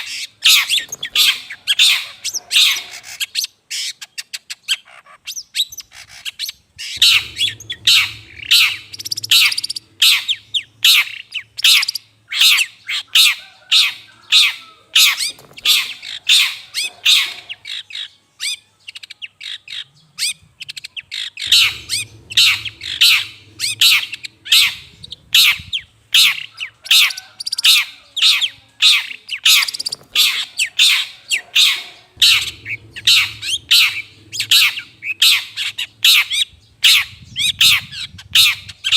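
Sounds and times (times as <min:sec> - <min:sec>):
shrike harsh calls: 0:06.8 - 0:11.9, 0:13.2 - 0:17.8, 0:21.4 - 0:38.8
low hum: 0:07.0 - 0:11.5, 0:21.4 - 0:26.2, 0:29.8 - 0:38.8.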